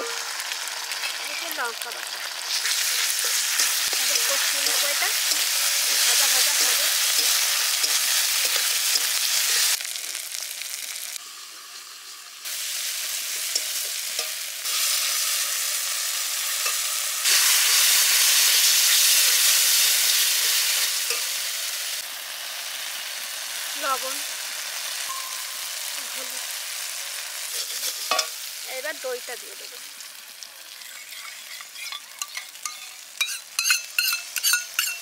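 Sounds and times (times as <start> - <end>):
onions sizzling in hot oil: 0.0 - 35.0
metal spatula scraping a pan: 2.5 - 9.8, 13.2 - 21.4, 27.4 - 28.4, 30.7 - 35.0.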